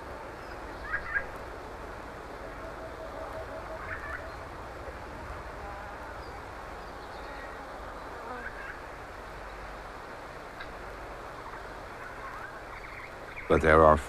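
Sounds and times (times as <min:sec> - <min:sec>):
chorus of frogs calling: 0:00.0 - 0:09.0.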